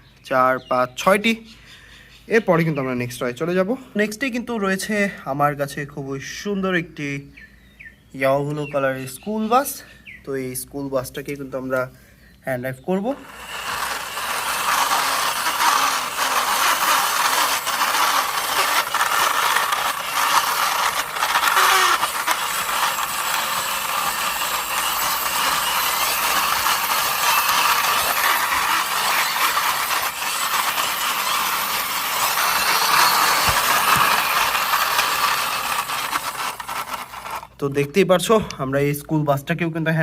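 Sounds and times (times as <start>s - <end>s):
toy bus wheels rattling: 13.2s - 37.6s.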